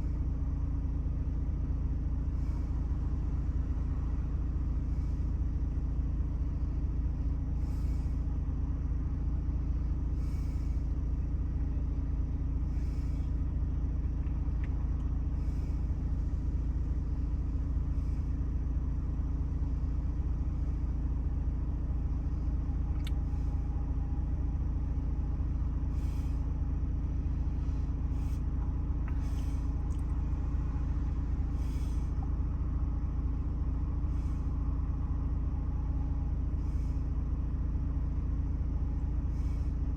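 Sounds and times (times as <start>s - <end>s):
diesel engine idling: 0.0s - 39.9s
click: 23.0s - 23.2s.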